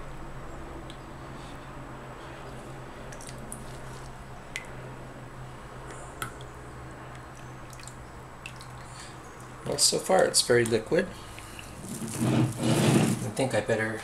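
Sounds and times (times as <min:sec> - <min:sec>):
steady low hum: 0:00.0 - 0:14.0
soap batter squishing: 0:05.8 - 0:09.8.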